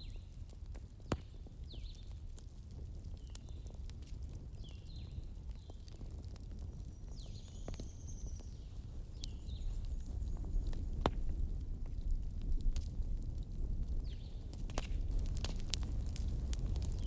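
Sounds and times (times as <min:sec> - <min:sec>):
campfire crackling: 0:00.0 - 0:17.0
small birds chirping: 0:01.7 - 0:02.1, 0:03.1 - 0:03.8, 0:06.8 - 0:10.9.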